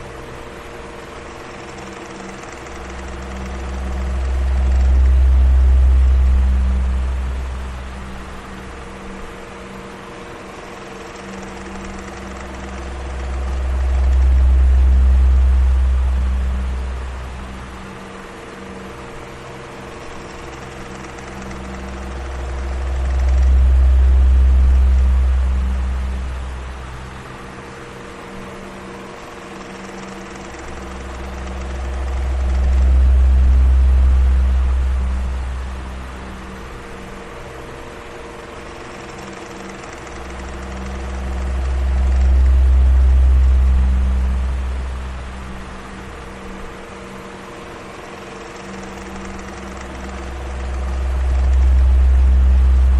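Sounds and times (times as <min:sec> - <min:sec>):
electric fan running: 0:00.0 - 0:52.9
deep low rumble: 0:02.9 - 0:08.4, 0:21.6 - 0:27.2, 0:30.8 - 0:36.8, 0:40.2 - 0:46.5, 0:49.2 - 0:52.9.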